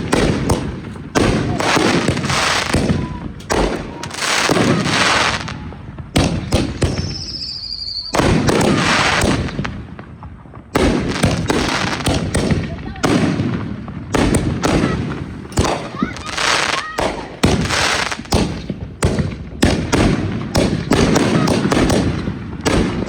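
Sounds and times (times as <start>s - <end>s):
fireworks bangs and crackling: 0.0s - 23.0s
high firework whistle: 1.4s - 9.4s.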